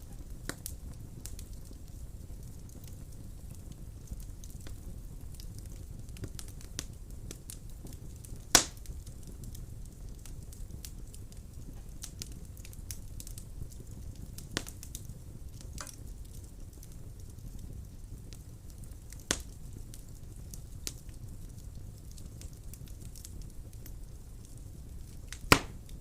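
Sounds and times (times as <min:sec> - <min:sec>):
wood fire burning: 0:00.0 - 0:26.0
sharp loud pop: 0:25.5 - 0:25.8.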